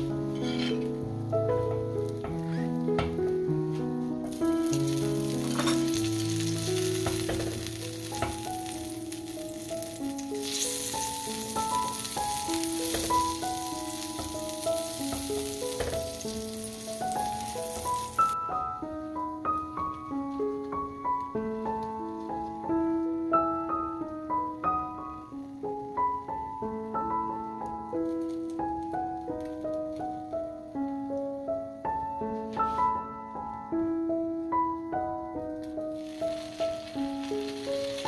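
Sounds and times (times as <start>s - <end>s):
toast sizzling in a griddle pan: 0.0s - 18.4s, 25.4s - 31.3s, 35.6s - 38.0s
piano music: 0.0s - 38.0s.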